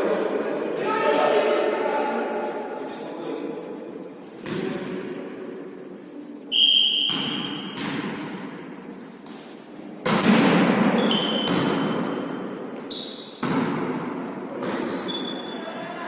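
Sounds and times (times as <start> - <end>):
volleyball smacks ringing in hall: 4.4 - 5.3, 6.6 - 15.6
short high squeaks: 12.9 - 13.4, 14.8 - 15.6.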